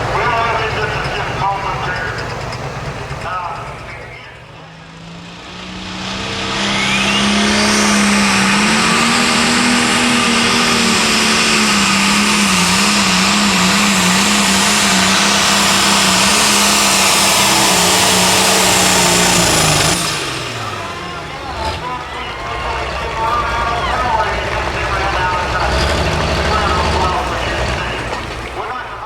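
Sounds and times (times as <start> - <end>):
diesel tractor engine at full throttle: 0.0 - 29.0.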